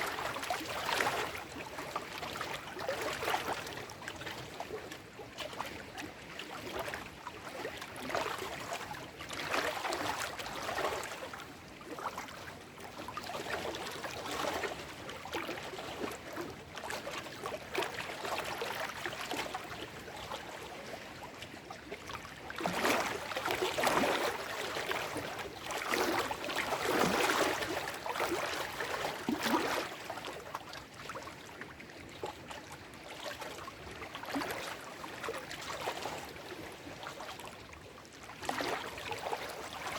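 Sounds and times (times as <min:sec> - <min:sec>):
waves lapping over rocks: 0:22.1 - 0:30.8.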